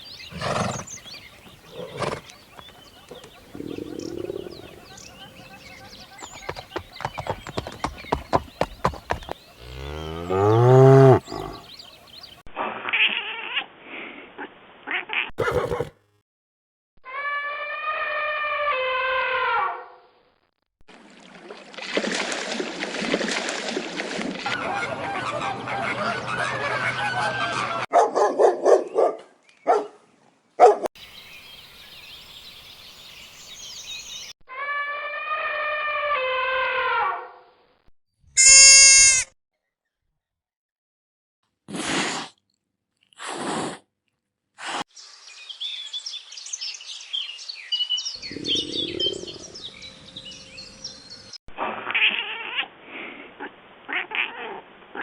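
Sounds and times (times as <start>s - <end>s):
dog barking: 27.9s - 30.0s, 30.6s - 30.9s
short animal cries: 38.4s - 39.3s.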